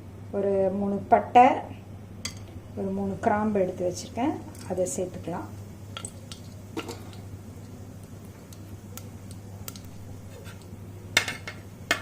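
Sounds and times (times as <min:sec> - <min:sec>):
spices sizzling in oil: 0:02.2 - 0:12.0.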